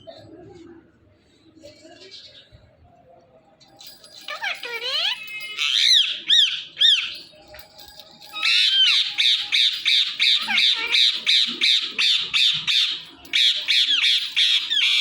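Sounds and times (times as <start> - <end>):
parrot squawking: 4.3 - 7.2, 8.4 - 15.0.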